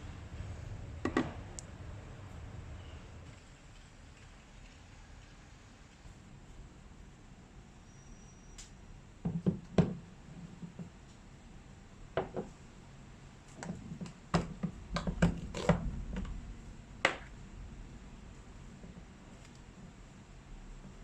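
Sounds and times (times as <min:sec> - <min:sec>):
hard objects knocking and clattering: 0:01.0 - 0:01.4, 0:09.2 - 0:10.0, 0:12.2 - 0:12.5, 0:13.6 - 0:16.3.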